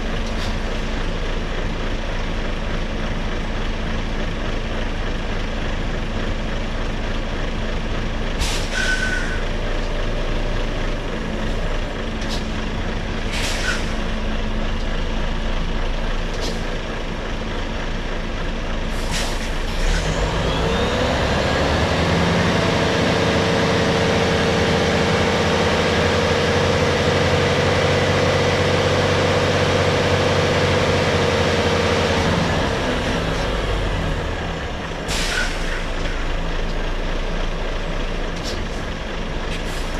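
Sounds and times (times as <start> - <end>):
diesel lorry engine running: 0.0 - 39.9
air brake hisses: 8.4 - 9.5, 13.3 - 14.1, 18.9 - 20.1, 35.0 - 36.1, 39.5 - 39.9.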